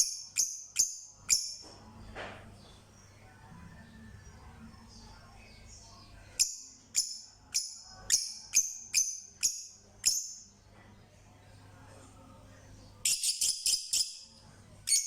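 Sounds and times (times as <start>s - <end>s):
bird high chirps: 13.0s - 15.0s.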